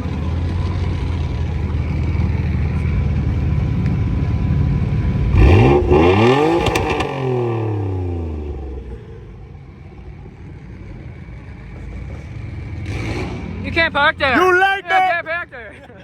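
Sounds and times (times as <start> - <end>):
car engine revving and accelerating: 0.0 - 9.3, 11.5 - 14.2
sharp exhaust pops: 6.5 - 7.3.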